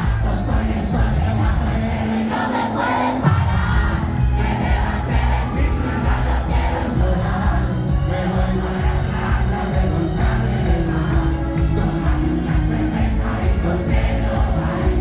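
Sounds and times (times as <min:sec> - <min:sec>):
crowd singing along: 0:00.0 - 0:15.0
live band playing: 0:00.0 - 0:15.0.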